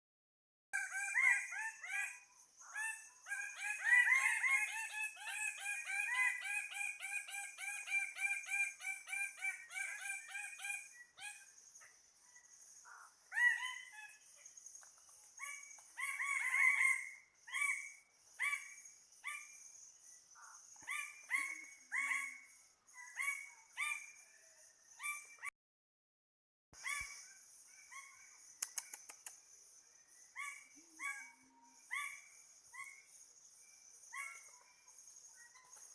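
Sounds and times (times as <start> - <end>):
birds calling: 26.8 - 29.2.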